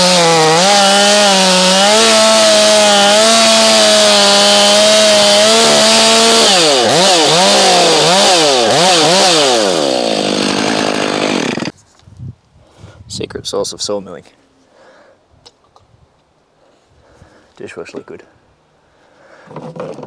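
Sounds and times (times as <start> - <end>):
saw blade cutting log: 0.0 - 11.7.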